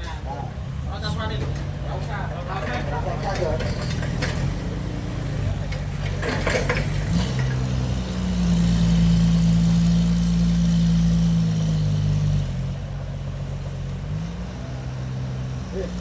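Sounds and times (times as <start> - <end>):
engine speeding up: 3.2 - 16.0.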